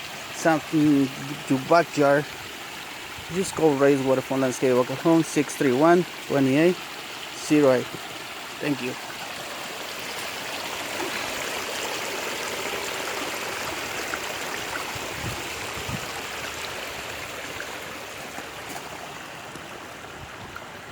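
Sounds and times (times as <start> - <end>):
water splashing over rocks: 0.0 - 20.9.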